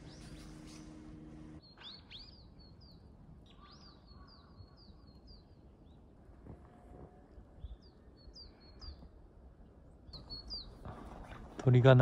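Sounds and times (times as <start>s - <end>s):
small birds chirping: 0.0s - 6.1s, 10.1s - 11.4s.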